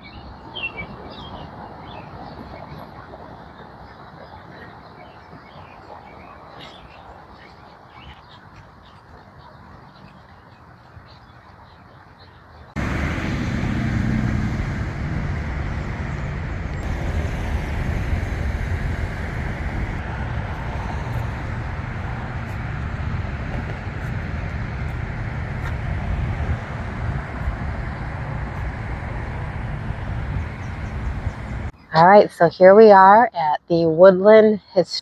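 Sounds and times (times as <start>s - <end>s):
car road and engine rumble: 12.8s - 31.8s.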